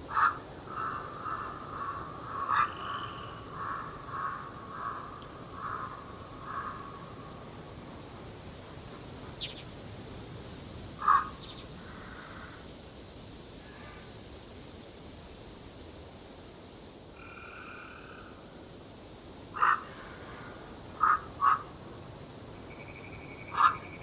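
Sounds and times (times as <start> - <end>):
outdoor background noise: 0.0 - 24.0
short animal calls: 0.1 - 6.8.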